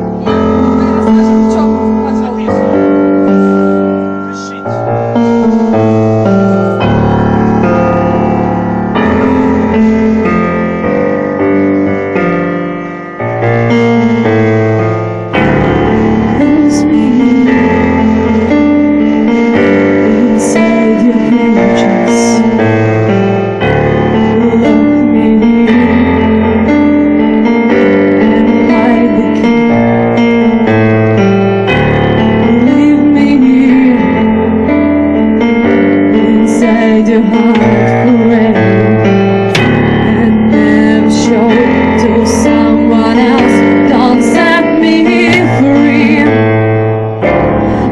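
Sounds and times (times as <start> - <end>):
keyboard chords: 0.0 - 47.9
woman singing: 16.2 - 18.6, 19.8 - 22.6, 24.2 - 26.9, 28.2 - 29.8, 32.2 - 34.6, 36.1 - 39.2, 39.9 - 46.5.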